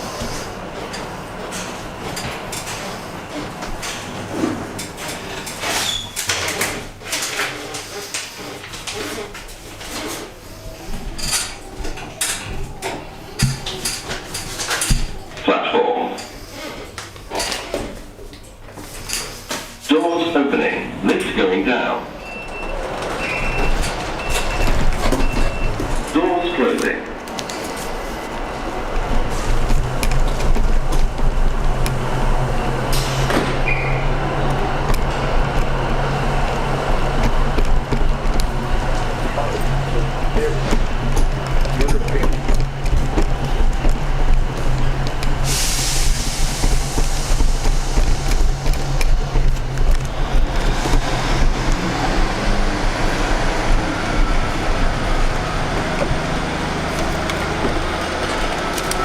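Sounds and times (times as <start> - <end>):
lift motor hum: 22.1 - 59.0
vehicle rumble and hiss: 27.3 - 59.0.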